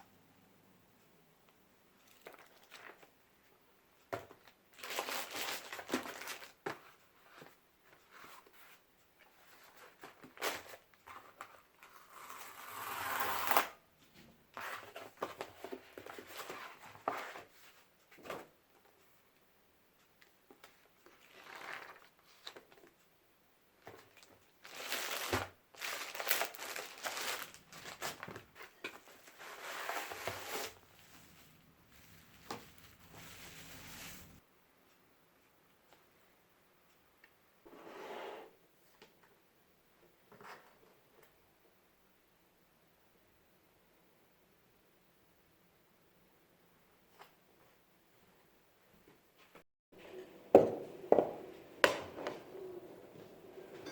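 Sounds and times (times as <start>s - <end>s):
rustling and crinkling by hand: 1.9s - 12.3s, 13.9s - 19.2s, 20.0s - 23.1s, 23.7s - 35.0s.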